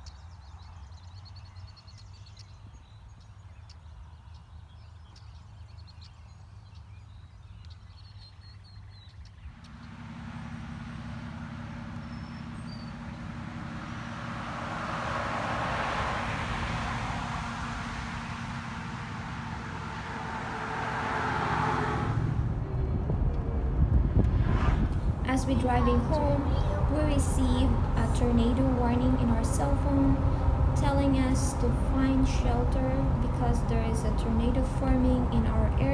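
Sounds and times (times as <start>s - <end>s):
road noise: 0.0s - 35.9s
car engine: 9.4s - 35.9s
faint bird chirps: 10.4s - 14.2s.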